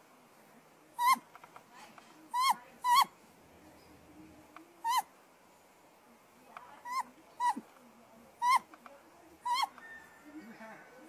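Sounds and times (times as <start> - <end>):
owl squeaky calls: 1.0 - 1.2, 2.3 - 3.1, 4.8 - 5.1, 6.8 - 7.6, 8.4 - 8.7, 9.4 - 10.0.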